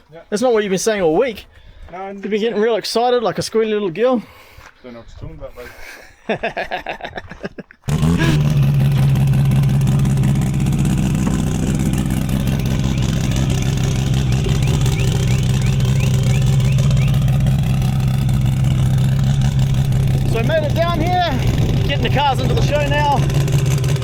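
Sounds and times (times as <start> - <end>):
car engine running steadily: 7.9 - 24.0.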